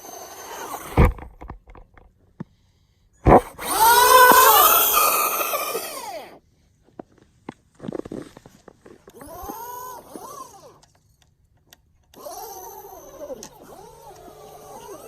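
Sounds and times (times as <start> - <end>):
electric motor whining: 0.0 - 1.8, 3.3 - 6.4, 9.2 - 10.8, 12.1 - 15.0
sharp thumps: 0.6 - 2.1, 3.2 - 5.0.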